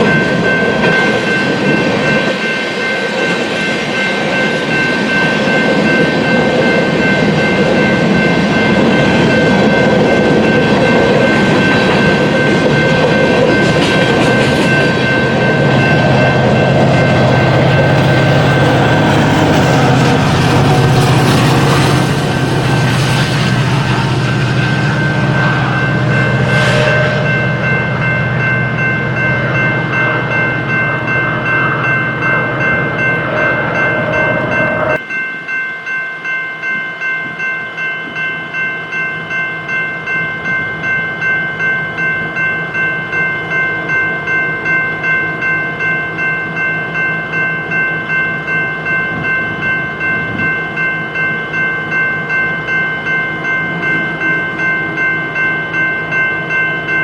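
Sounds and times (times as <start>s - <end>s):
train cars rolling: 0.0s - 35.1s
pulsing high-pitched ringing: 0.0s - 57.0s
heavy low rumble: 14.6s - 35.0s.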